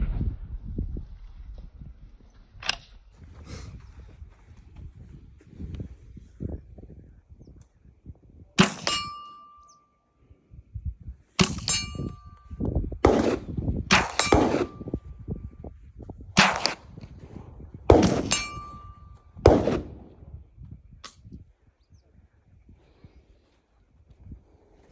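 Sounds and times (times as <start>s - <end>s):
rifle shots: 8.6s - 9.3s, 11.4s - 12.4s, 13.0s - 15.0s, 16.4s - 17.2s, 17.9s - 20.3s
metallic ring of steel target: 8.6s - 9.8s, 11.4s - 15.4s, 16.4s - 17.0s, 17.9s - 20.2s.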